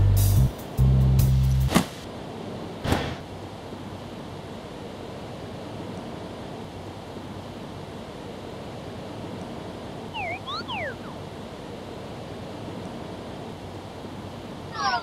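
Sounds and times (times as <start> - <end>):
quick chirp-like glides: 10.1 - 11.2.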